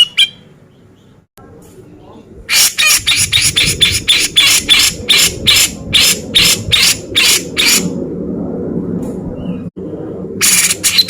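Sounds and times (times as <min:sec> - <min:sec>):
low steady hum: 0:00.0 - 0:11.0
bird giving harsh rasping notes: 0:02.5 - 0:08.0, 0:10.4 - 0:11.0.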